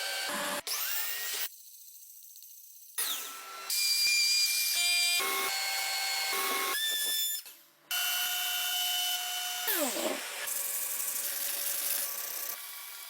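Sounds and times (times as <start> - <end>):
woodworking power tools whining: 0.0 - 0.9.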